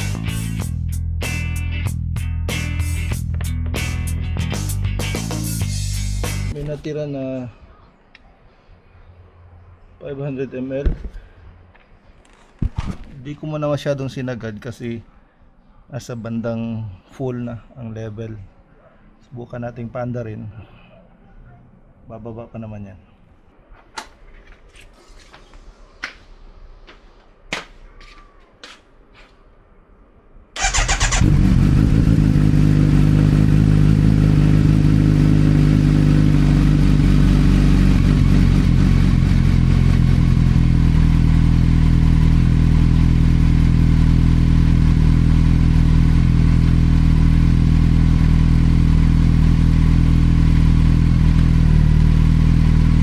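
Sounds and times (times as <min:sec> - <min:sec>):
motorcycle engine starting and idling: 0:30.6 - 0:53.0.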